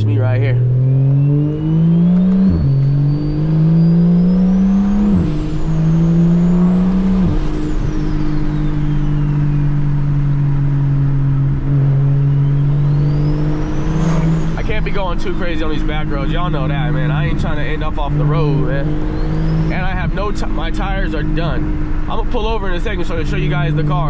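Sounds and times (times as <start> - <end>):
car engine accelerating through gears: 0.0 - 24.0
turbo whistle: 1.0 - 10.0, 12.3 - 14.8.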